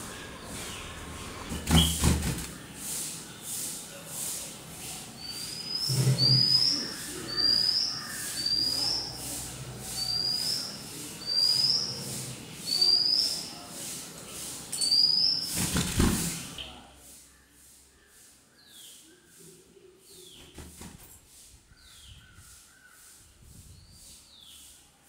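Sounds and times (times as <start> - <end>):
bird chirping: 0.1 - 2.6, 5.2 - 13.7, 14.8 - 15.8.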